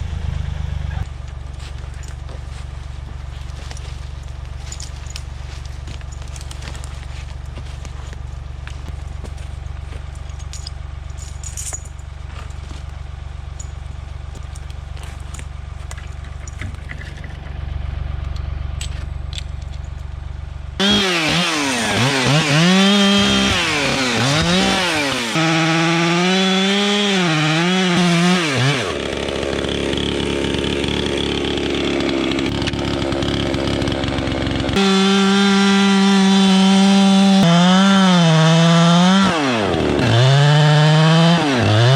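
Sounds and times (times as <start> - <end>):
chainsaw cutting into tree: 1.6 - 10.1, 20.8 - 41.9.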